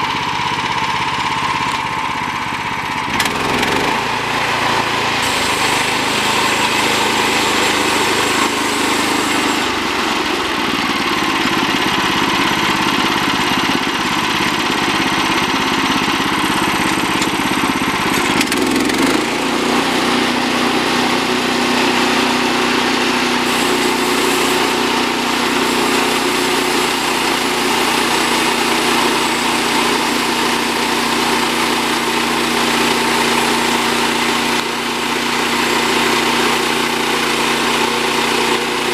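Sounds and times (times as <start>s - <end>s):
gasoline engine running: 0.0s - 38.9s
band blade sawing log: 3.2s - 10.8s, 16.2s - 38.9s.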